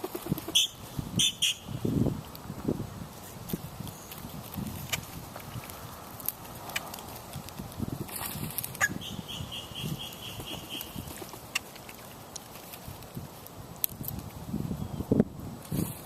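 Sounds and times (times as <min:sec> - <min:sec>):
bird calling high notes: 0:00.6 - 0:01.8, 0:08.8 - 0:11.1.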